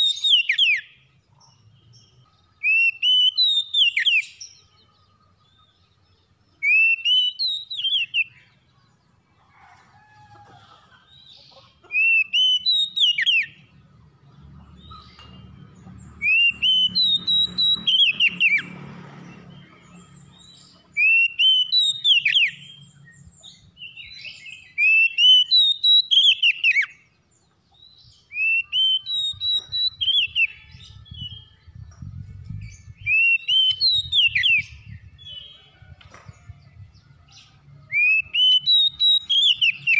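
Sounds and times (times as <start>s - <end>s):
bird singing whistled notes: 0.0s - 4.8s, 6.6s - 8.5s, 12.0s - 13.6s, 16.2s - 18.7s, 20.3s - 27.0s, 27.9s - 35.6s, 37.9s - 39.9s.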